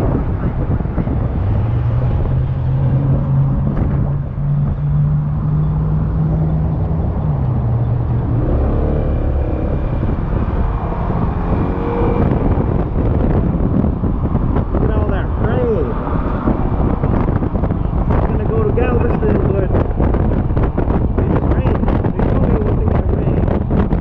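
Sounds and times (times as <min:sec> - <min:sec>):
wind and road rush: 0:00.0 - 0:24.0.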